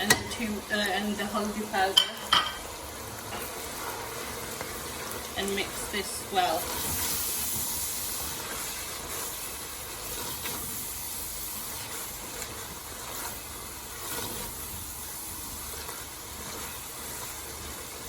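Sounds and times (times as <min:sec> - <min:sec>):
spoon knocking pan: 0:00.0 - 0:03.5
onions sizzling in hot oil: 0:00.0 - 0:18.0.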